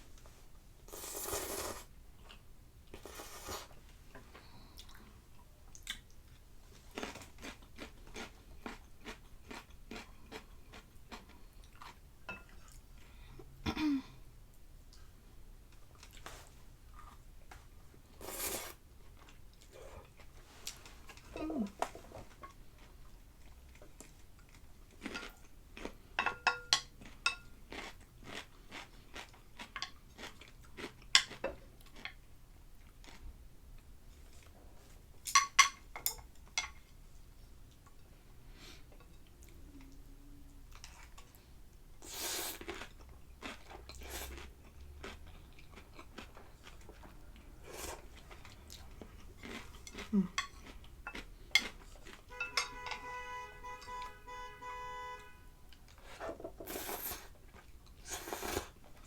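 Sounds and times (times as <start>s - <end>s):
chewing and crunching: 4.5s - 12.9s, 26.9s - 33.3s, 42.6s - 52.3s.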